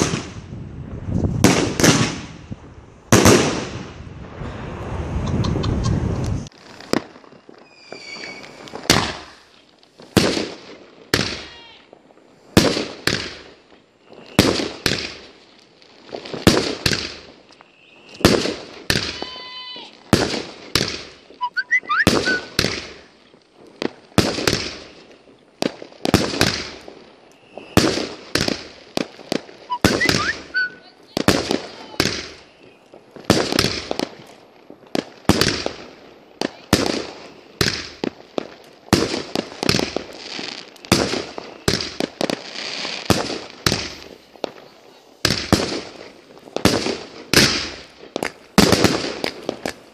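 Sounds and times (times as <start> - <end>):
firework whistling and crackling: 0.0 - 49.9
firework shells banging: 20.1 - 23.1, 26.1 - 34.3.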